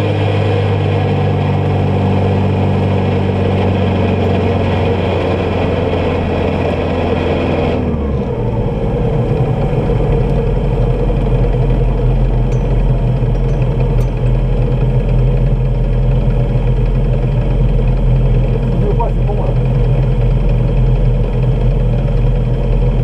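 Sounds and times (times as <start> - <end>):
buggy engine idling: 0.0 - 23.0.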